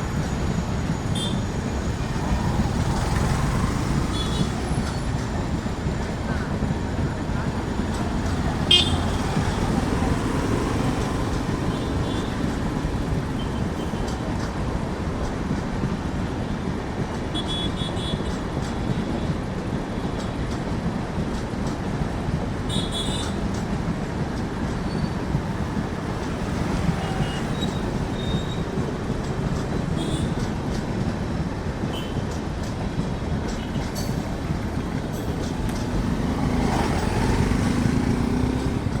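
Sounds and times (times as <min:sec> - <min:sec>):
train wheels rumbling on rail: 0:00.0 - 0:39.0
high squeals: 0:24.8 - 0:28.8.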